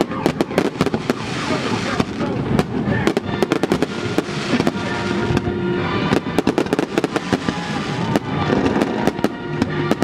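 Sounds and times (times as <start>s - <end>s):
fireworks bangs and crackles: 0.0s - 10.0s
music with held notes: 2.0s - 10.0s.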